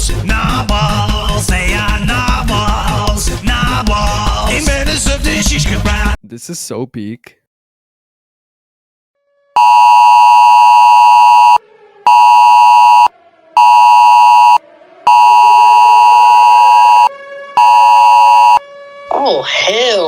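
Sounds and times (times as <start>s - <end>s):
faint gliding siren tone: 9.5s - 19.4s
harsh two-tone alert beep: 9.6s - 18.6s.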